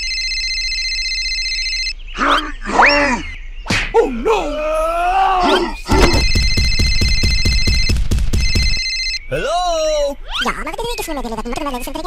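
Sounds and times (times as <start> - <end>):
telephone ringing: 0.0 - 2.0, 6.0 - 9.2
gruff voice groaning and yelling: 4.0 - 6.2.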